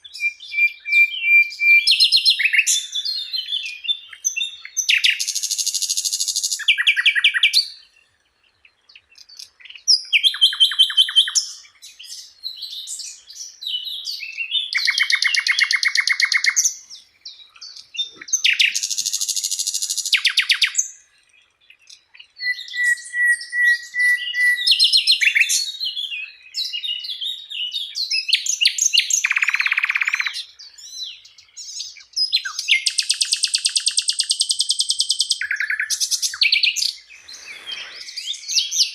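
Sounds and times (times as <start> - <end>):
songbird singing trills: 0.0 - 38.9.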